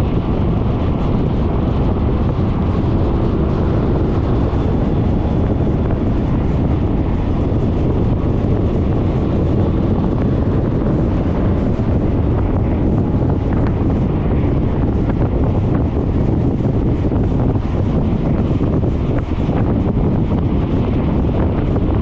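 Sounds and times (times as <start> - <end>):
road noise: 0.0 - 22.0
wind buffeting microphone: 0.0 - 22.0.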